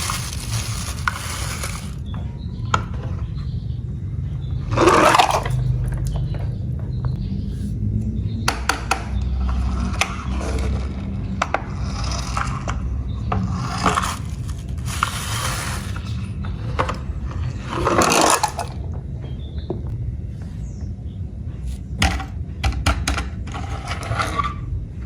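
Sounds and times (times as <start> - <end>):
plastic toy cars clicking: 0.0 - 2.0, 13.5 - 16.1, 17.7 - 18.7
toy cars scraping: 0.0 - 2.0, 4.7 - 5.7, 9.4 - 18.8, 23.5 - 24.7
low rumble: 0.0 - 22.6.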